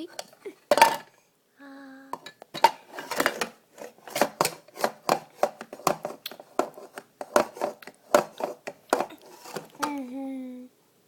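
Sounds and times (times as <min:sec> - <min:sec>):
spoon and dishes clattering: 0:00.2 - 0:01.1, 0:02.2 - 0:03.5.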